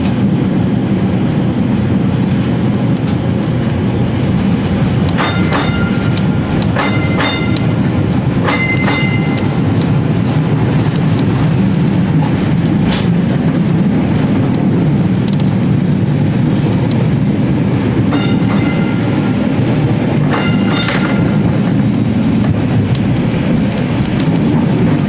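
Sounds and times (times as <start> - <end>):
streetcar rumbling on rails: 0.0 - 25.0
sharp clacks of rails: 2.2 - 13.6, 17.9 - 25.0.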